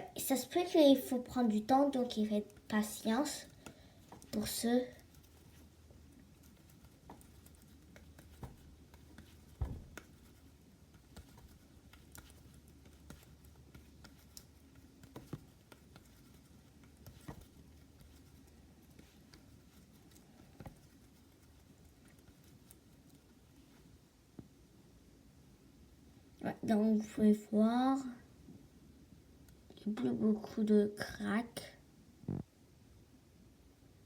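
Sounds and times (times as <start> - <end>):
hands rolling slime: 1.0 - 24.0.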